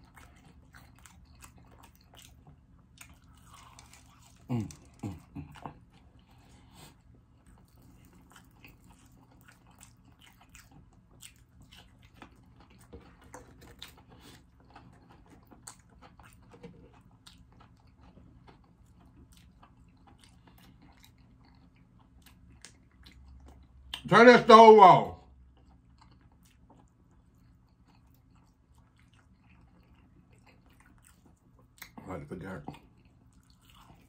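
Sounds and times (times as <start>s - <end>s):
chewing crunchy fried chicken: 0.0s - 34.0s.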